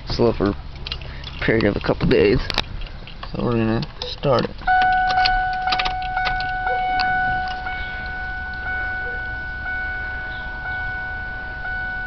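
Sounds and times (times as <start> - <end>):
car engine cranking: 0.0 - 12.0
dashboard warning chime: 4.0 - 12.0.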